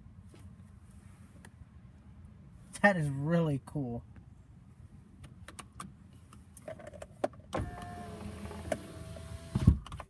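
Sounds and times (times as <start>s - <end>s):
power window motor whining: 7.6s - 9.8s.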